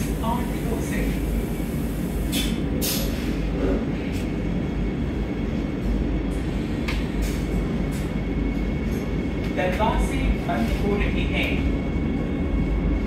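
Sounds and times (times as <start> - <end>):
train coach low rumble: 0.0 - 13.0
short hissing sounds: 1.3 - 3.4.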